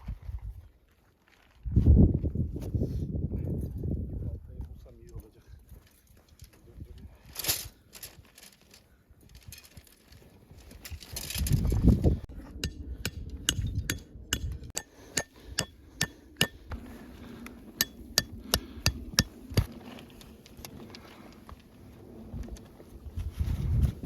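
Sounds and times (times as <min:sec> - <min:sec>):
low rumbling handling noise: 0:09.3 - 0:24.0
hammer striking metal stake: 0:12.5 - 0:16.8, 0:17.8 - 0:19.7.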